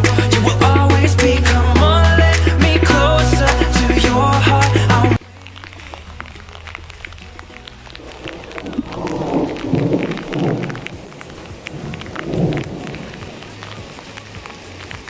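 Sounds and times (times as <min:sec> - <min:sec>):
rain pattering: 0:04.8 - 0:15.0.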